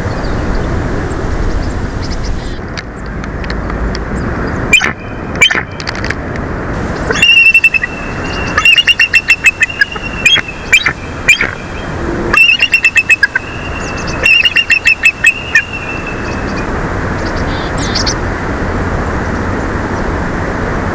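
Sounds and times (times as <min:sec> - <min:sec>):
eagles chattering calls: 0:04.7 - 0:05.7, 0:06.9 - 0:18.1.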